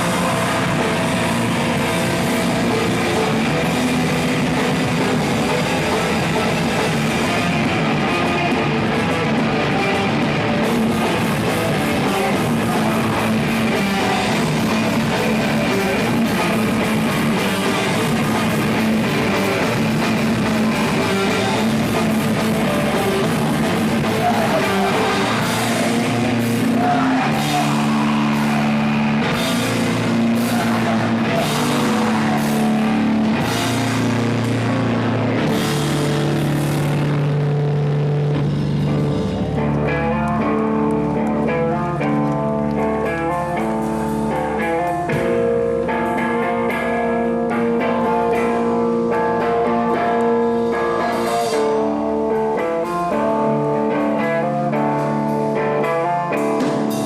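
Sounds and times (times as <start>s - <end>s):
person singing: 0.0s - 33.9s, 47.6s - 55.3s
live rock band playing: 0.0s - 57.0s.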